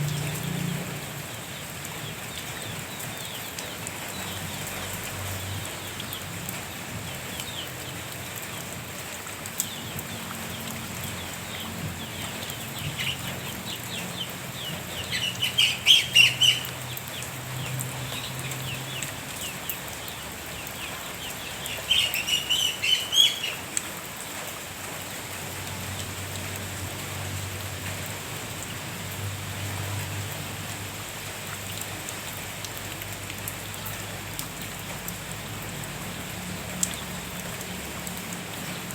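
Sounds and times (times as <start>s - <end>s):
steady rain falling: 0.0s - 38.9s
bird calling in loud bursts: 12.5s - 16.9s, 21.3s - 23.8s.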